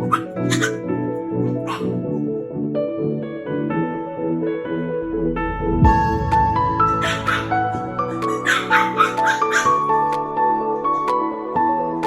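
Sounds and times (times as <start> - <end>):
puppy yelping: 0.0 - 0.8, 1.4 - 2.0, 7.0 - 10.1
piano music: 0.0 - 12.0.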